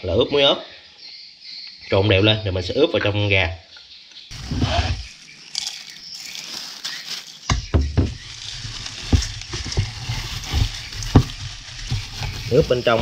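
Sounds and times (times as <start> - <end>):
soft thumps: 7.5 - 13.0
hands rubbing seasoning on chicken: 8.2 - 13.0.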